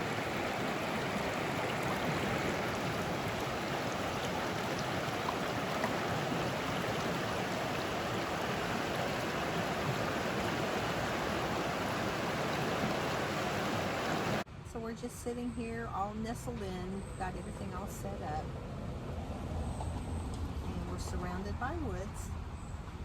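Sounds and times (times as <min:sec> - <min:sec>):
creek flowing over rocks: 0:00.0 - 0:14.4.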